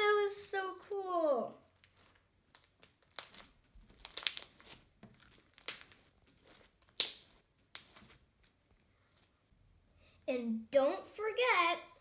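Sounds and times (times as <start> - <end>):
slime squeezed and crunched: 1.7 - 8.2
air popping in slime: 2.5 - 4.8, 5.4 - 6.1, 6.8 - 8.0.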